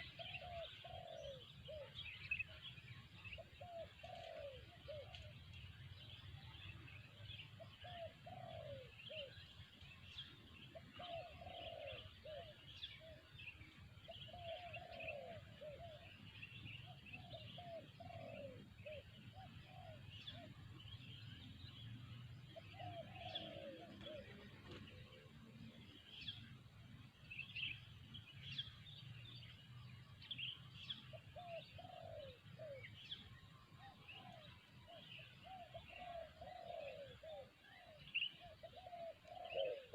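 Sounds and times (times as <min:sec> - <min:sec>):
dove cooing: 0:00.0 - 0:02.6, 0:03.3 - 0:06.1, 0:07.7 - 0:09.5, 0:10.7 - 0:13.3, 0:14.0 - 0:20.7, 0:22.5 - 0:26.3, 0:31.1 - 0:39.9
small birds chirping: 0:00.0 - 0:39.9.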